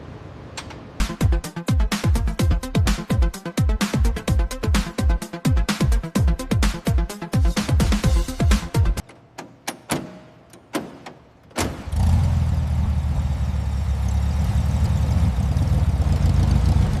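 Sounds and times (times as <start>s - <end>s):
engine starting with a bang: 10.8s - 12.4s
engine idling: 11.8s - 17.0s.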